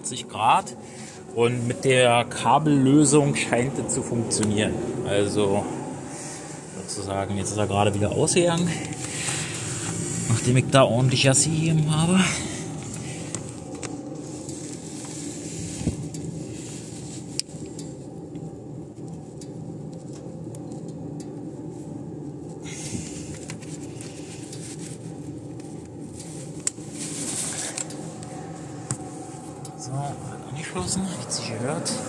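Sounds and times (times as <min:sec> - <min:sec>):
petrol engine idling: 0:00.0 - 0:32.0
wiring clicks: 0:25.2 - 0:26.9, 0:27.6 - 0:29.8.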